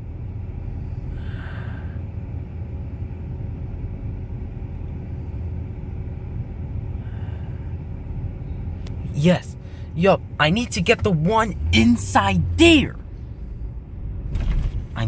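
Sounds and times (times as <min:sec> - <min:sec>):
car engine idling: 0:06.2 - 0:15.0.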